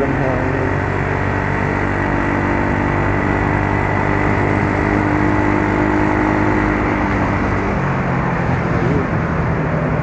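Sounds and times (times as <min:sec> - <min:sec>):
scooter engine running: 0:00.0 - 0:07.7
road noise: 0:00.0 - 0:10.0.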